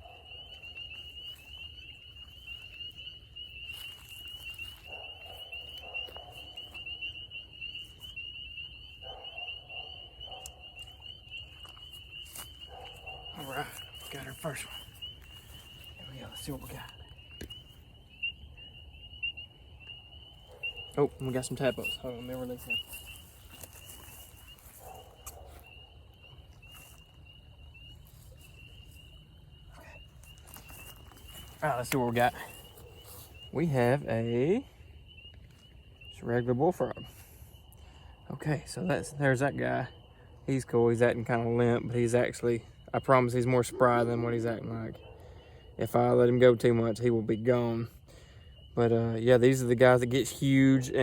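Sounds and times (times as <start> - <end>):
frogs peeping chorus: 0.0 - 51.0
lower-pitched pulsing calls: 0.0 - 51.0.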